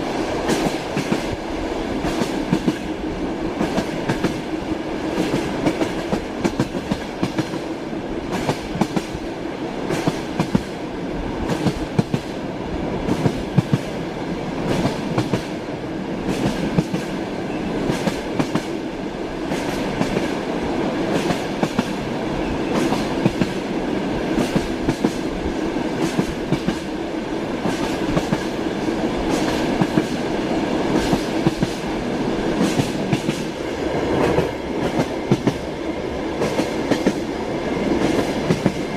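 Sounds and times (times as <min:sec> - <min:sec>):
train carriage rumble and drone: 0:00.0 - 0:38.9.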